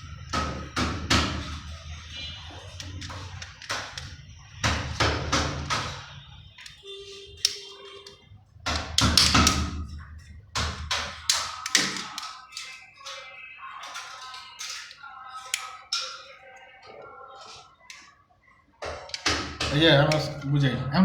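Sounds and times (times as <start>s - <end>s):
tools and plastic parts clicking: 0.0s - 16.4s.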